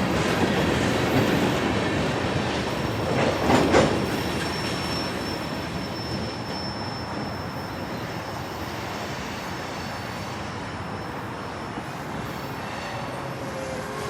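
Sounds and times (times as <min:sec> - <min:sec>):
freight train rumbling past: 0:00.0 - 0:14.0
high wheel squeal: 0:03.9 - 0:14.0.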